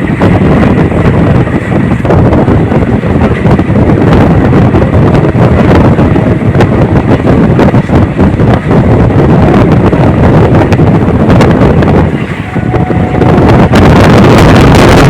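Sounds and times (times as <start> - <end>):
train rumbling along track: 0.0 - 15.0
wind buffeting microphone: 0.0 - 15.0.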